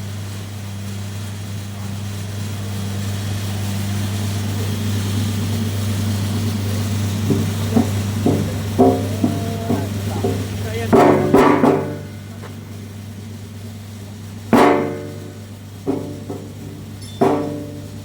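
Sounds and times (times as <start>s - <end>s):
short knocks: 6.2s - 13.4s, 14.5s - 18.0s.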